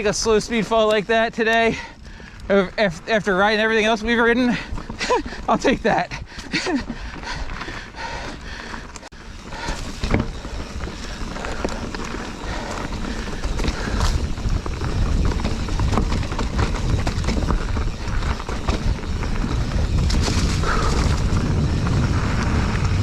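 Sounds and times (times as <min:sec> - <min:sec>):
bike rattling: 0:00.0 - 0:23.0
bike tyres crunching on rocks: 0:00.0 - 0:23.0
wind rumble on microphone: 0:09.3 - 0:23.0.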